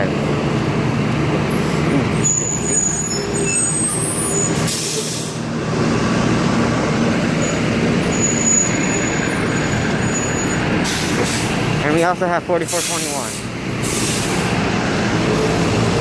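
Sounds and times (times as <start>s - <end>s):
bus engines running: 0.0s - 16.0s
air brake hiss: 4.6s - 5.4s, 10.8s - 11.5s, 12.7s - 14.5s.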